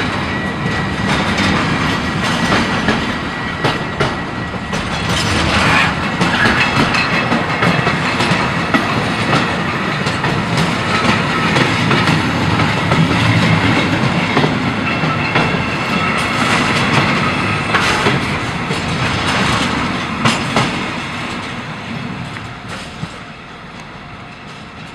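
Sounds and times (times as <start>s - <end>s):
train wheels clattering: 0.0s - 24.9s.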